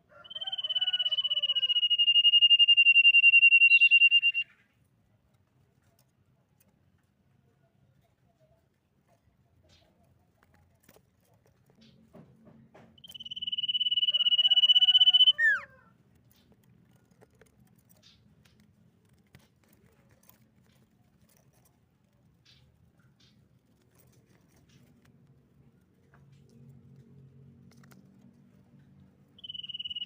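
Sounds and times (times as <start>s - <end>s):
bird whistling: 0.3s - 4.5s, 13.0s - 15.7s, 29.4s - 30.0s.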